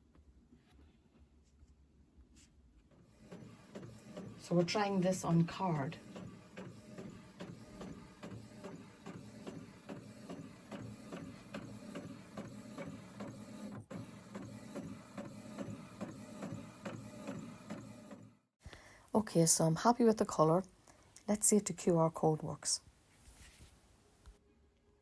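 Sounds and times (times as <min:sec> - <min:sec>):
printer mechanism ticking: 0:03.1 - 0:18.3.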